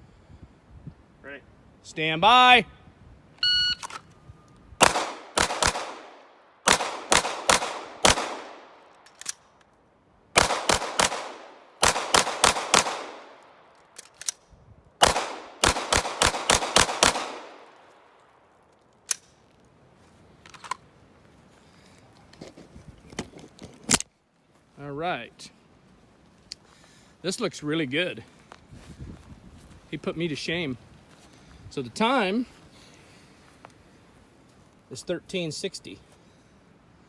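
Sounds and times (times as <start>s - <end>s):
shot timer beep: 3.4s - 3.9s
magazine swapping: 3.8s - 4.2s, 6.7s - 9.7s, 11.8s - 17.8s, 18.9s - 19.6s, 20.4s - 20.9s
handgun shots: 4.8s - 6.1s, 6.7s - 8.6s, 10.4s - 13.3s, 15.0s - 17.6s.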